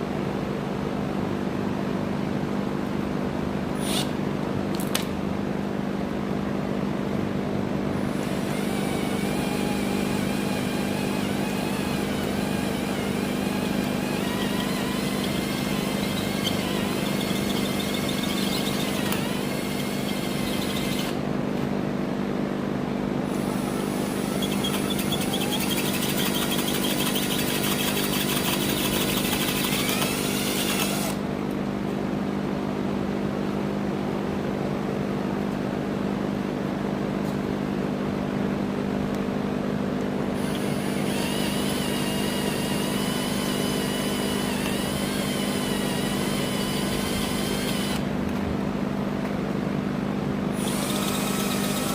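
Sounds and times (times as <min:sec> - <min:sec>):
drill bit whining through metal: 0:03.8 - 0:04.1, 0:08.0 - 0:21.2, 0:23.2 - 0:31.2, 0:40.3 - 0:48.1, 0:50.5 - 0:51.9
electric drill running: 0:03.8 - 0:04.1, 0:08.0 - 0:21.2, 0:23.2 - 0:31.2, 0:40.3 - 0:48.1, 0:50.5 - 0:51.9.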